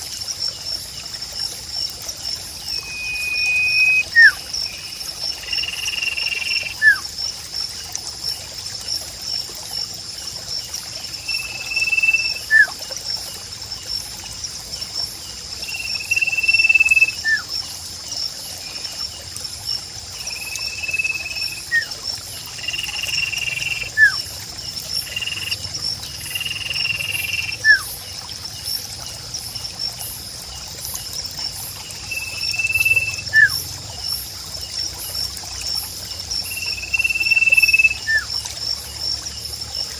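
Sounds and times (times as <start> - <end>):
high insect trill: 0.0 - 39.9
trickle of water: 0.0 - 39.9
bird whistling and chirping: 2.8 - 4.4, 5.6 - 7.0, 11.3 - 12.8, 15.9 - 17.5, 20.7 - 21.9, 23.3 - 24.2, 27.0 - 27.9, 32.1 - 33.6, 36.6 - 38.3.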